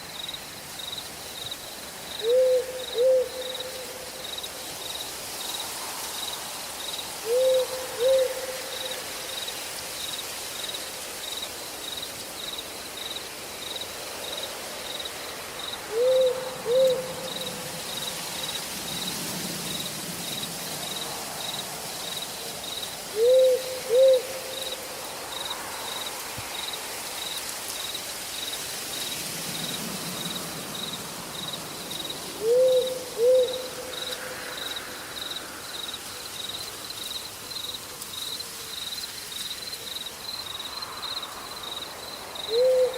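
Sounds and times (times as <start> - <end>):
steady background hiss: 0.0 - 42.9
high insect chirping: 0.1 - 42.9
owl hooting: 2.2 - 4.0, 7.2 - 9.0, 15.9 - 17.4, 23.1 - 24.7, 32.4 - 33.9, 42.5 - 42.9.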